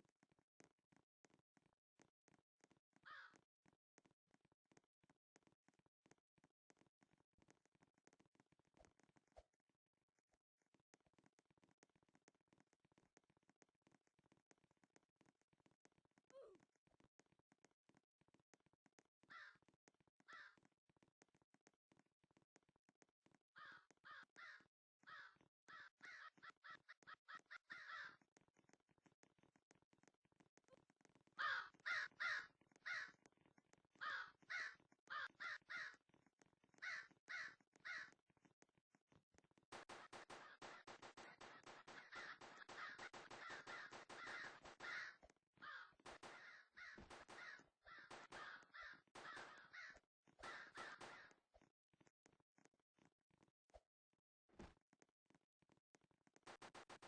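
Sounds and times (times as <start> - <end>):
crow cawing: 3.1 - 3.4, 19.3 - 19.6, 20.3 - 20.6, 23.6 - 28.2, 31.4 - 33.1, 34.0 - 36.0, 36.8 - 38.1, 40.0 - 51.3.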